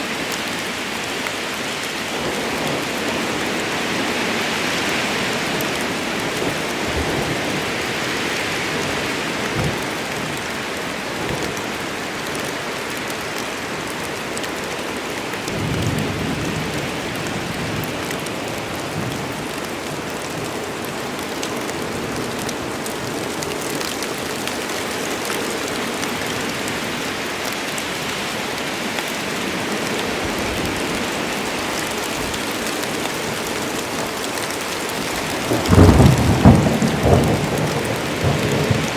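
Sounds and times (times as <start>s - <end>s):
heavy rain on forest: 0.0s - 38.9s
low thunder rumble: 35.4s - 38.9s.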